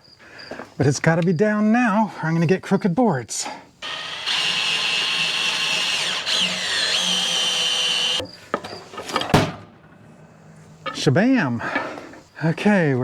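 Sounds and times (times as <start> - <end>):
hydraulic pump whining: 3.8 - 8.2.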